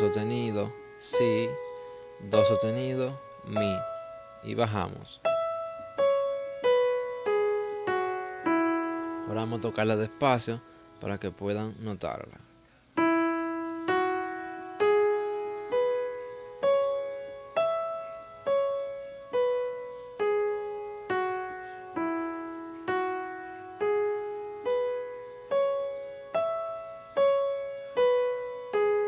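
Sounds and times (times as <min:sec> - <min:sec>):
piano playing single notes: 0:00.0 - 0:11.9.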